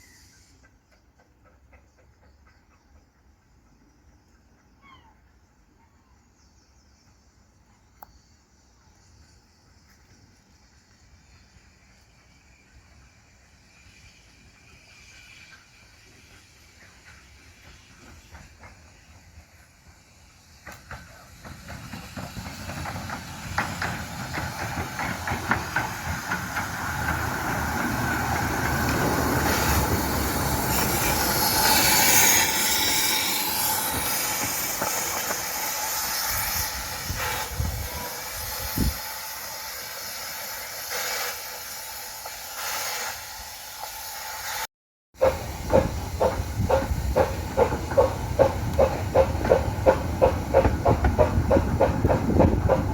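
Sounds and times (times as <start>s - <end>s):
train passing: 0.0s - 5.8s, 6.8s - 52.9s
train hiss: 0.0s - 52.9s
wheels clicking over rail joints: 0.6s - 3.2s, 20.6s - 36.0s, 45.2s - 52.9s.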